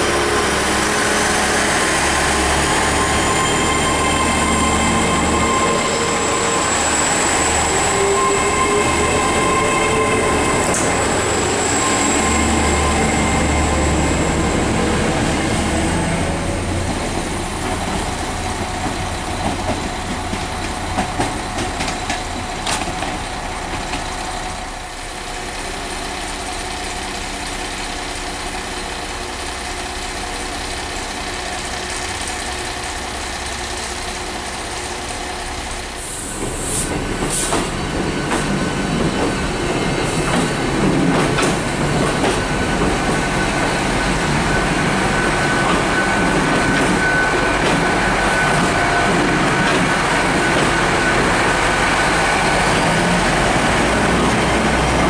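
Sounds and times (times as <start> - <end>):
high wheel squeal: 0.0 - 16.3, 42.3 - 55.0
train low rumble: 0.0 - 55.0.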